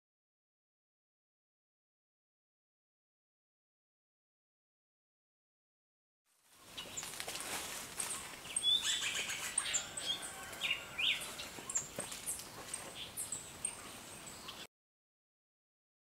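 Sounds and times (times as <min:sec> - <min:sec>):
faint outdoor hiss: 0:06.3 - 0:14.7
birds chirping and whistling: 0:06.7 - 0:07.2, 0:08.0 - 0:14.7.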